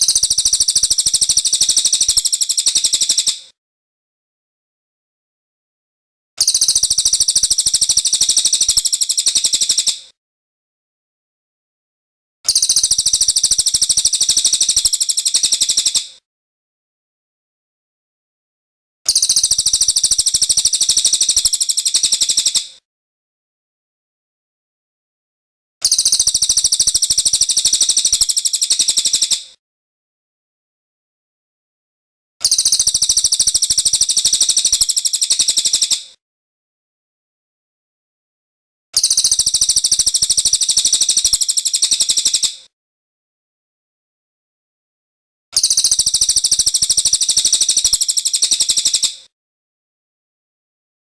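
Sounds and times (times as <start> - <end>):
songbird trilling: 6.4 - 9.9, 12.5 - 16.0, 19.1 - 22.6, 32.4 - 36.0, 39.0 - 42.5, 45.6 - 49.1.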